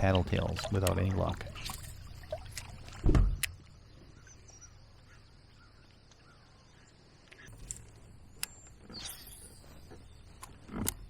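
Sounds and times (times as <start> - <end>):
faint bird calls: 3.6 - 7.6.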